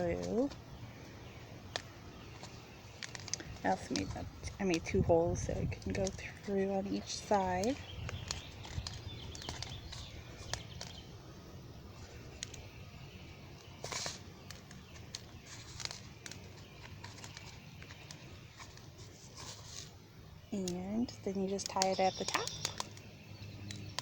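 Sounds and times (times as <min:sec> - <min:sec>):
crackles: 0:00.0 - 0:24.0
cardboard and string rustling: 0:01.7 - 0:11.1, 0:13.5 - 0:20.0.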